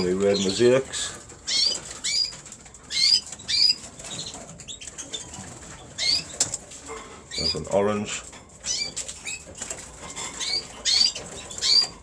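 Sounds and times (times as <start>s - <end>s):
canaries chirping: 0.0s - 12.0s.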